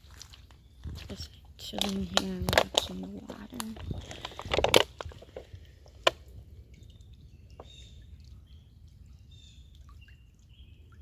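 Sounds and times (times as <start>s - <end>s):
creek water running: 0.0s - 11.0s
birds chirping: 6.7s - 11.0s.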